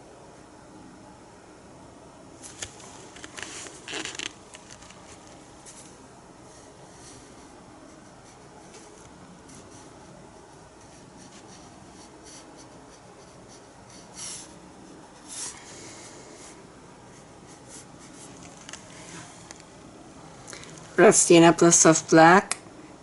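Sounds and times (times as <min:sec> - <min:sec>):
paintbrush scratchy strokes: 0:05.0 - 0:19.5.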